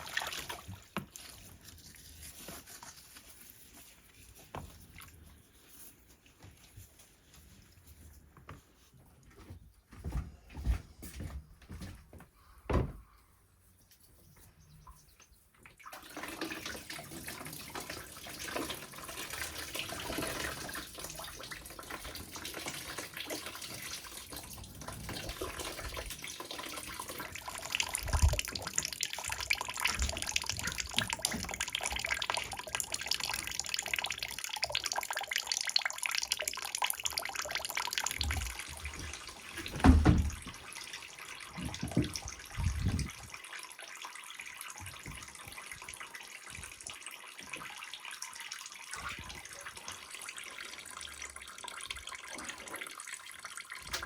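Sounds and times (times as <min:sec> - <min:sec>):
liquid pouring: 0:00.0 - 0:03.8, 0:15.8 - 0:54.0.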